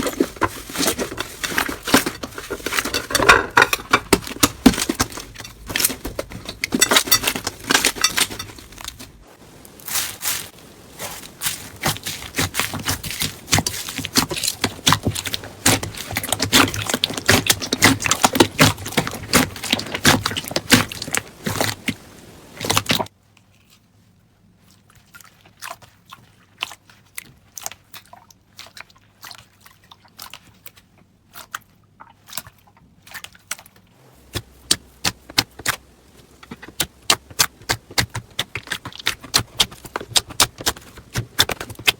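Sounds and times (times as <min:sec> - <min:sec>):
crunchy slime crackling: 0:00.0 - 0:23.1, 0:33.1 - 0:41.9.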